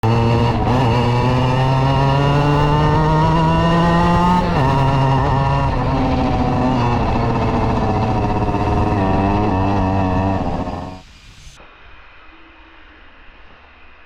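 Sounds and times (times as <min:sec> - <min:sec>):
two-stroke motorcycle engine revving: 0:00.0 - 0:11.0.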